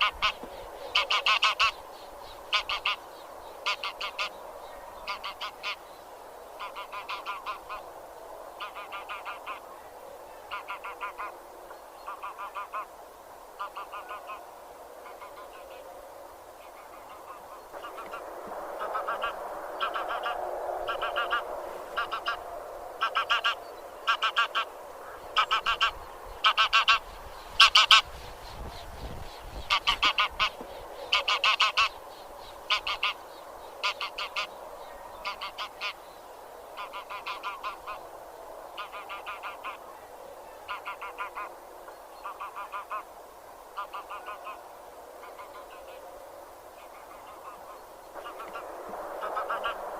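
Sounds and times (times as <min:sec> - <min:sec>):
geese honking: 0:00.0 - 0:01.8, 0:02.5 - 0:03.0, 0:03.6 - 0:04.4, 0:05.0 - 0:05.8, 0:06.6 - 0:07.8, 0:08.6 - 0:09.6, 0:10.5 - 0:11.4, 0:12.1 - 0:12.9, 0:13.6 - 0:14.4, 0:16.7 - 0:28.1, 0:29.6 - 0:32.0, 0:32.6 - 0:33.2, 0:33.8 - 0:34.6, 0:35.2 - 0:36.0, 0:36.8 - 0:38.0, 0:38.8 - 0:39.8, 0:40.6 - 0:41.5, 0:42.2 - 0:43.1, 0:43.8 - 0:44.6, 0:46.8 - 0:49.9.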